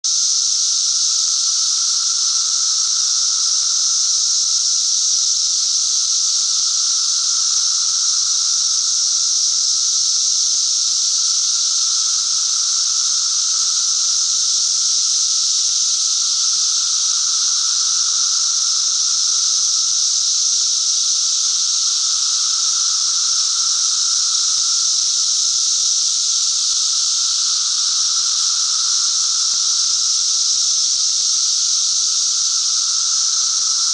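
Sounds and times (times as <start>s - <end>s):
cicadas buzzing: 0.1s - 33.9s.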